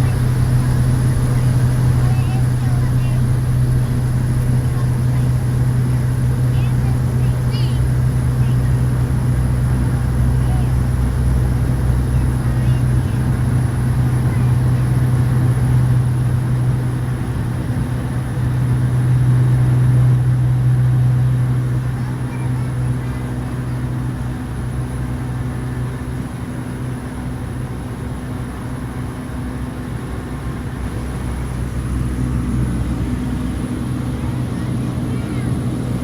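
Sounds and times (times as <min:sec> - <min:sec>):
turboprop engine drone: 0:00.0 - 0:36.0.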